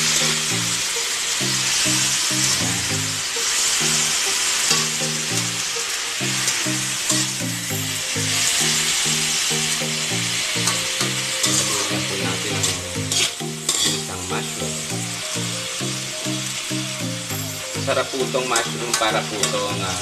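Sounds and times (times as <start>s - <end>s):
background music with low notes: 0.0s - 20.0s
mushrooms sizzling in a wok: 0.0s - 20.0s
spatula scraping a wok: 10.6s - 12.1s, 13.0s - 14.1s.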